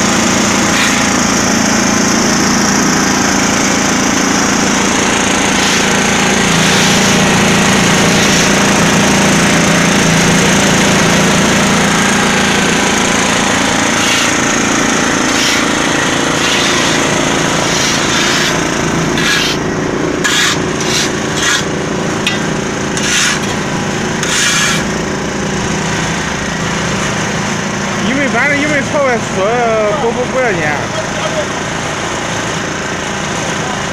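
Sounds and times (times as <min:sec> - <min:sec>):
concrete mixer running: 0:00.0 - 0:33.9
short scrapes: 0:05.5 - 0:07.3, 0:08.0 - 0:08.6, 0:13.9 - 0:14.4, 0:15.2 - 0:18.6, 0:19.2 - 0:19.6, 0:20.2 - 0:21.7, 0:23.0 - 0:23.6, 0:24.2 - 0:24.9.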